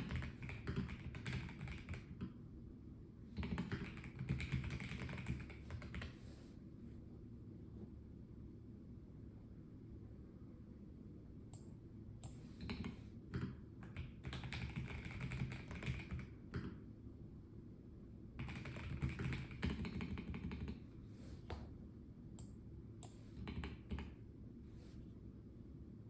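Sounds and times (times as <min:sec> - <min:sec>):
mechanical keyboard typing: 0:00.0 - 0:02.3, 0:03.4 - 0:06.1, 0:12.6 - 0:16.7, 0:18.4 - 0:20.8.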